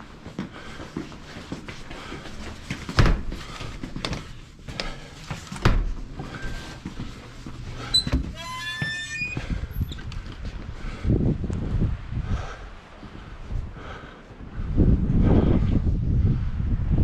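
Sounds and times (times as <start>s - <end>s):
high stepped squeak: 7.9s - 10.0s.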